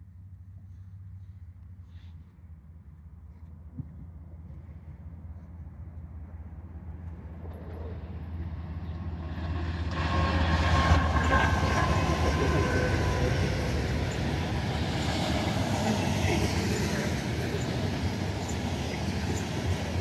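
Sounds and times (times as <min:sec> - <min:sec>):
diesel locomotive engine drone: 0:00.0 - 0:20.0
freight cars rumbling on rails: 0:07.0 - 0:20.0.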